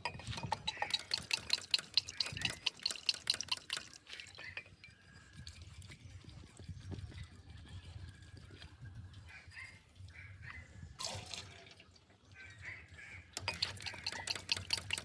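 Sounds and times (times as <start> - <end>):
diesel dripping: 0.5 - 4.0, 13.4 - 15.0.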